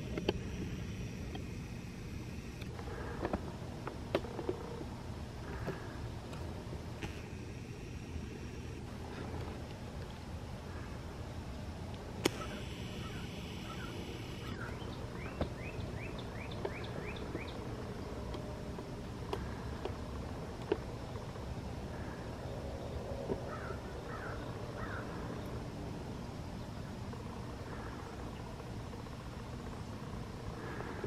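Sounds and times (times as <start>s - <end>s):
sharp clicks: 0.0s - 4.6s, 11.9s - 14.6s
steady low rumble: 0.0s - 31.0s
songbird calling rising notes: 12.3s - 18.2s.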